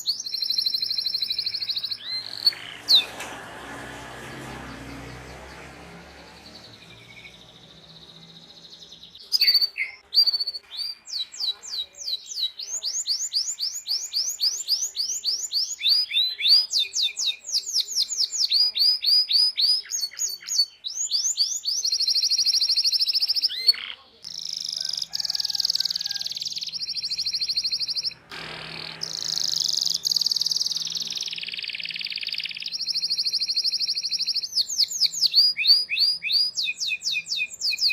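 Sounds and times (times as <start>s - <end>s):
canary chirps: 0.0s - 37.9s
canary singing: 0.0s - 37.9s
canary rolling trills: 0.4s - 8.7s, 21.8s - 33.5s.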